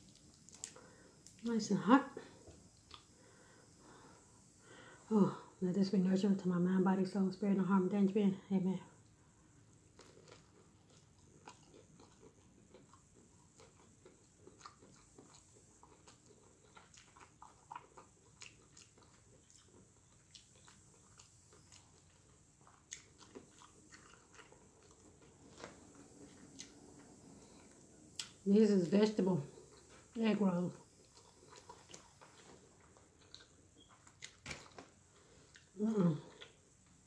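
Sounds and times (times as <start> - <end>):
crunchy chewing of egg roll: 0.0 - 1.5, 9.0 - 37.0.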